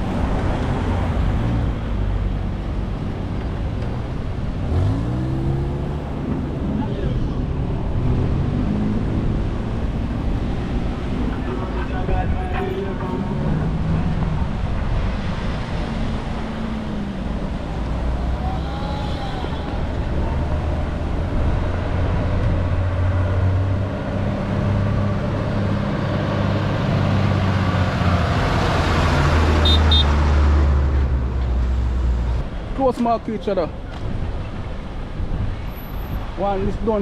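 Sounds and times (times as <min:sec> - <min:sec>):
vehicle engines humming: 0:00.0 - 0:37.0
vehicle passing: 0:04.5 - 0:32.5.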